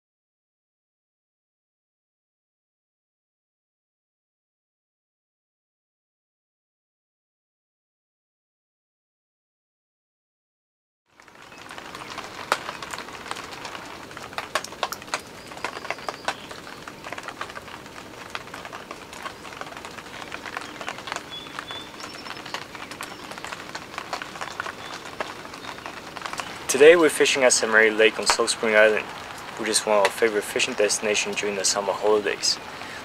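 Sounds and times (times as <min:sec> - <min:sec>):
sharp taps of raindrops: 0:11.1 - 0:33.0
steady rain falling: 0:11.1 - 0:33.0.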